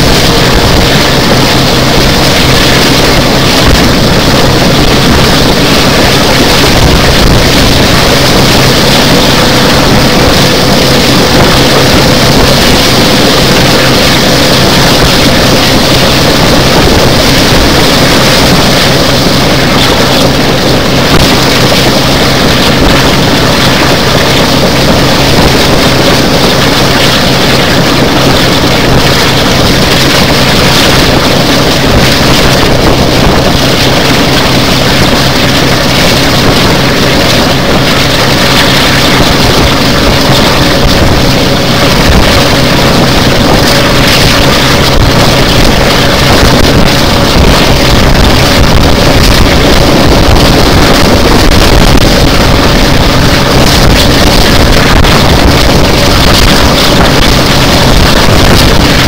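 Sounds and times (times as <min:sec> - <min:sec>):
diesel locomotive drone: 0:00.0 - 0:59.0
train running noise: 0:00.0 - 0:59.0
wind rushing over microphone: 0:00.0 - 0:59.0.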